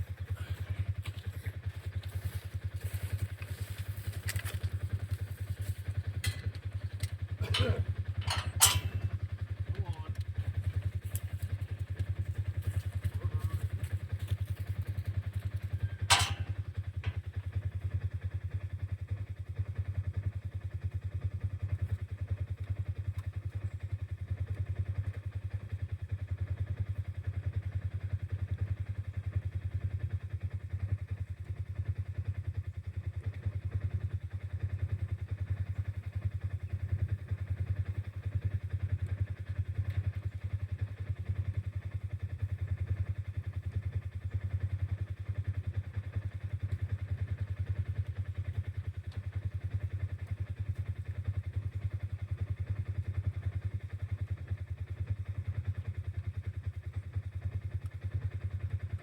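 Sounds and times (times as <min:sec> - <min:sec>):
vehicle engine droning: 0:00.0 - 0:17.6.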